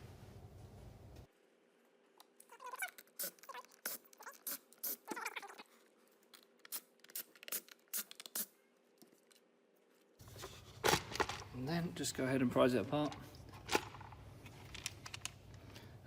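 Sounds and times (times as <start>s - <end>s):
tools and plastic parts clicking: 13.0s - 15.9s.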